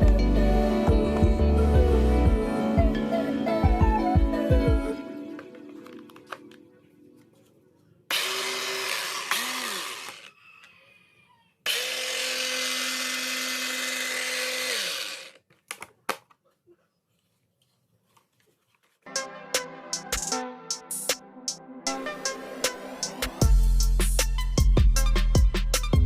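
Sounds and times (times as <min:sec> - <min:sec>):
starter motor whining: 0:08.1 - 0:10.3, 0:11.6 - 0:15.4.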